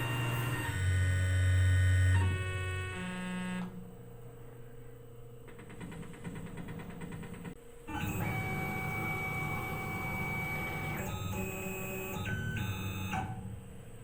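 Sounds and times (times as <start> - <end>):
stepper motor whine: 0.0 - 3.8, 7.9 - 14.0.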